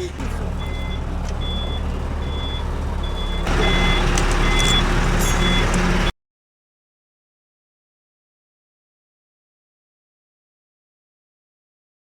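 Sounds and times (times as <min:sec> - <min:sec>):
truck engine running: 0:00.0 - 0:06.1
truck reversing alarm beeping: 0:00.0 - 0:06.1.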